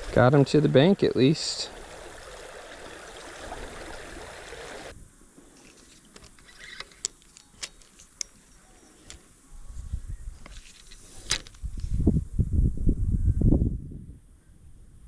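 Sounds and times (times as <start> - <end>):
creek water running: 0.0 - 4.9.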